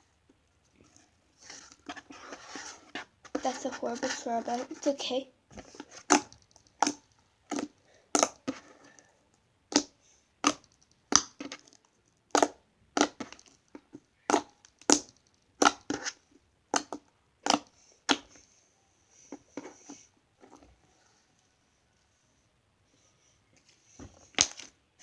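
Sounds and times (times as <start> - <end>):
slime squeezed with clicking pops: 9.7 - 11.4.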